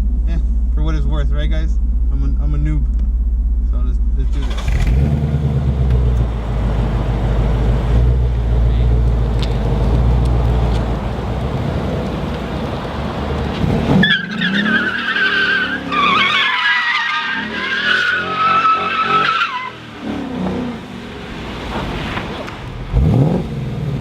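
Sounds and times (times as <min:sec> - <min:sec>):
engine low rumble: 0:00.0 - 0:14.8, 0:20.2 - 0:24.0
tires squealing: 0:04.3 - 0:23.5.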